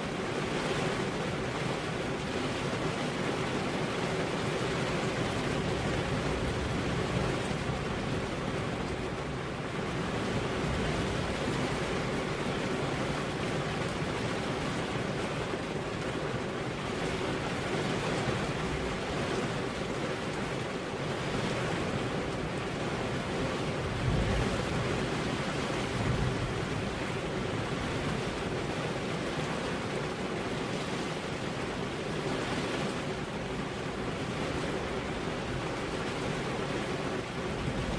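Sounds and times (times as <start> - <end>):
steady rain with wind: 0.0 - 37.9
low rumbles of thunder: 23.7 - 28.4.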